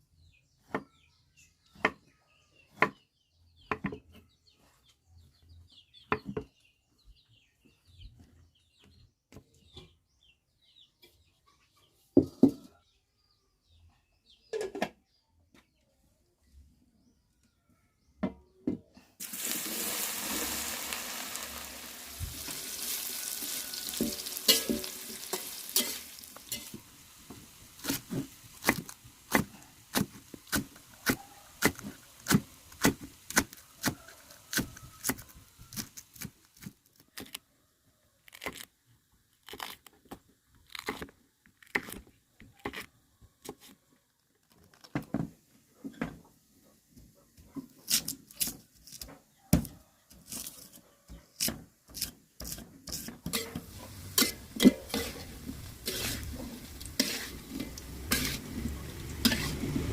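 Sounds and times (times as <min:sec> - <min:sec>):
food sizzling in hot oil: 0:19.2 - 0:36.1, 0:52.9 - 0:59.9
spatula tapping and scraping pan: 0:23.5 - 0:28.8, 0:51.4 - 0:59.9.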